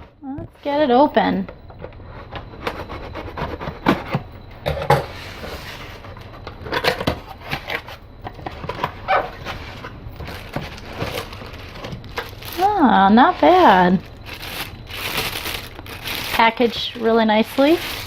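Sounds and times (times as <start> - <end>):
packaging rustling: 5.3 - 18.0.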